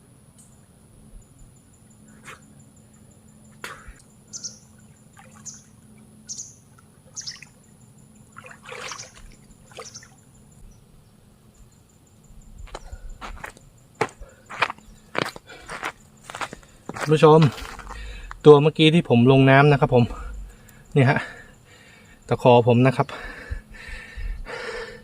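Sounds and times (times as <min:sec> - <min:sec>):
bird chirping: 0:01.2 - 0:13.5.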